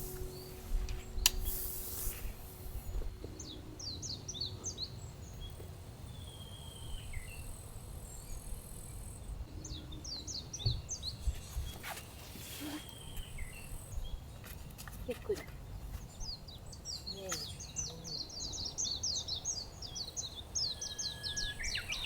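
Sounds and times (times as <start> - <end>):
low outdoor rumble: 0.0 - 6.3
birds chirping: 0.0 - 22.0.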